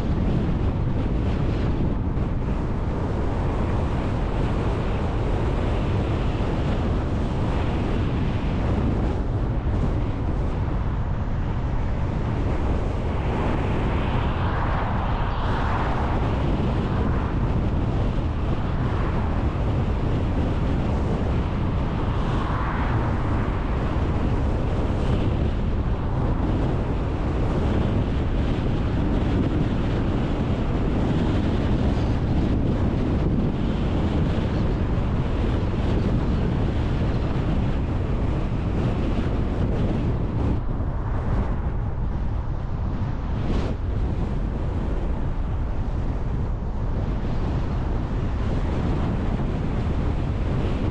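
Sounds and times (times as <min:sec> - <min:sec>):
wind buffeting microphone: 0:00.0 - 0:50.9
car road noise: 0:09.2 - 0:28.8, 0:36.7 - 0:50.8.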